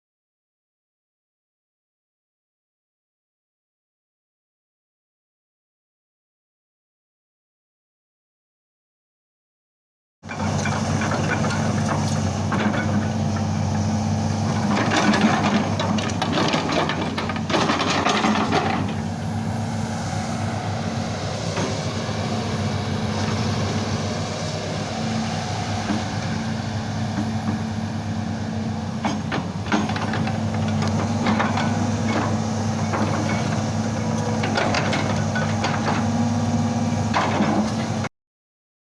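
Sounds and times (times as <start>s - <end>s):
excavator diesel engine running: 10.2s - 38.1s
metallic clanking and rattling: 14.5s - 19.1s.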